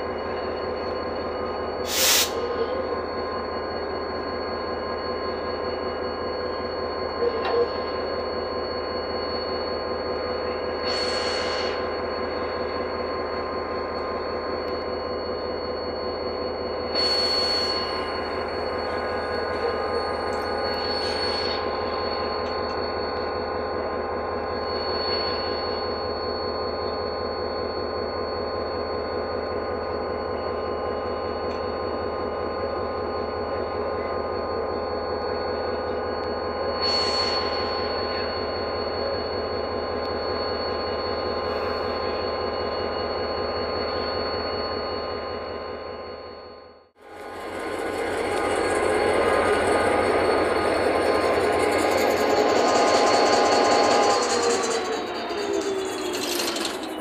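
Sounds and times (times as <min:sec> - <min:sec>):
train machinery hum with whine: 0:00.0 - 0:57.0
short bursts of hissing: 0:01.9 - 0:02.4.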